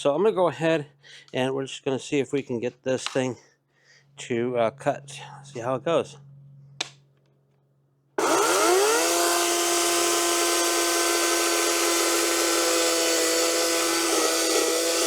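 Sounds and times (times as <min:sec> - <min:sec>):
electric chainsaw whining: 0:08.2 - 0:15.0.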